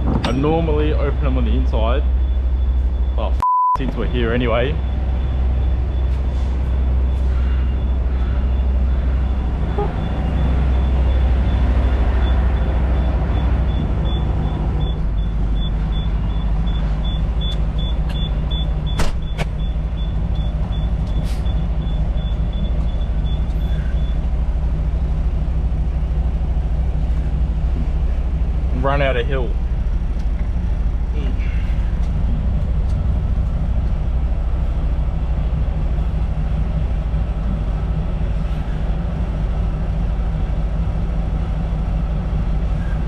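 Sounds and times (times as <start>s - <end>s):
heavy vehicle engine rumbling: 0.0s - 43.0s.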